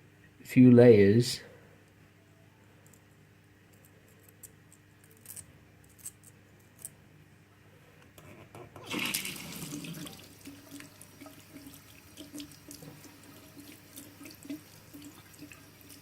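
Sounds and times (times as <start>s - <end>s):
tap water running into sink: 8.8s - 16.0s.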